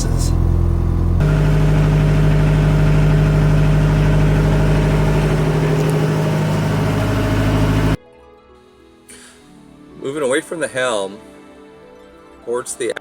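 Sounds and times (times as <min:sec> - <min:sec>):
diesel boat engine idling: 0:00.0 - 0:08.0.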